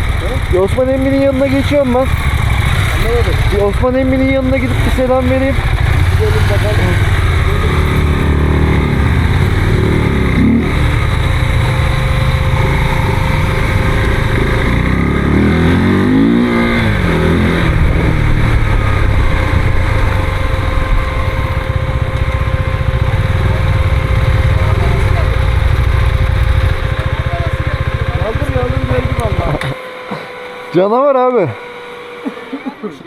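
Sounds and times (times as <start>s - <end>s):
motorcycle engine revving: 0.0s - 33.0s
wind rush: 16.5s - 21.9s.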